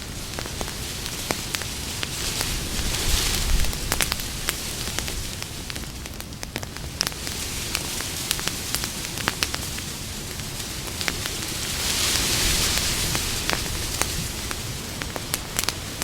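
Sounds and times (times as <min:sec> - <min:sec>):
campfire crackling: 0:00.0 - 0:16.0
loud hiss: 0:06.8 - 0:16.0.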